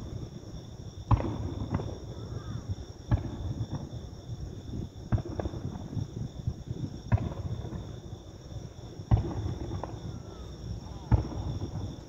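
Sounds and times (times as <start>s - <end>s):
fireworks bursting bangs: 1.1s - 2.1s, 3.1s - 4.0s, 5.0s - 6.0s, 7.0s - 8.0s, 9.1s - 10.4s, 11.0s - 12.0s.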